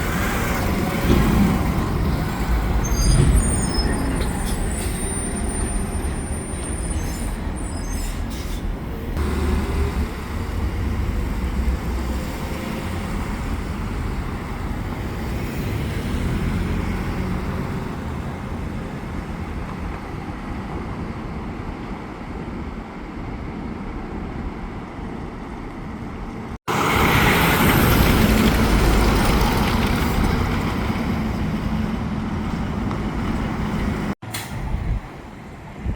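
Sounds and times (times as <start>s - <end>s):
passing traffic: 0.0s - 35.9s
truck engine rumble: 0.0s - 35.9s
high squeal: 2.8s - 8.8s.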